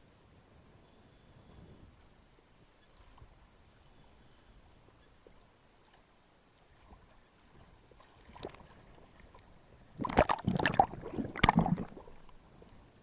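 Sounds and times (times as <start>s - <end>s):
water splashing and sloshing: 5.8s - 12.9s.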